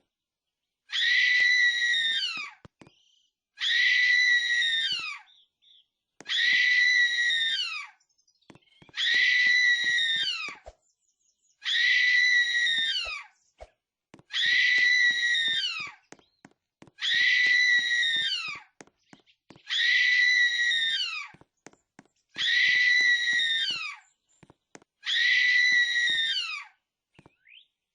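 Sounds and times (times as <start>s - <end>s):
shrill high-pitched scream: 0.9s - 2.5s, 3.6s - 5.2s, 6.3s - 7.9s, 9.0s - 10.6s, 11.6s - 13.3s, 14.3s - 16.0s, 17.0s - 18.7s, 19.7s - 21.3s, 22.4s - 24.0s, 25.0s - 26.7s.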